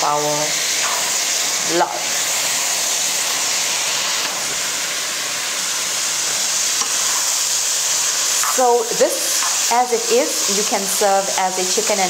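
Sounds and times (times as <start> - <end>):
chicken and vegetables sizzling in wok: 0.0 - 12.0.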